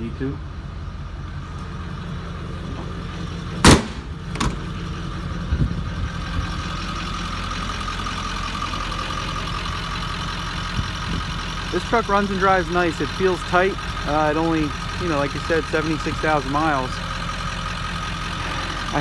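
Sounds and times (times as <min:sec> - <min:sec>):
diesel truck engine idling: 0:00.0 - 0:19.0
loud sharp bangs: 0:03.6 - 0:04.8.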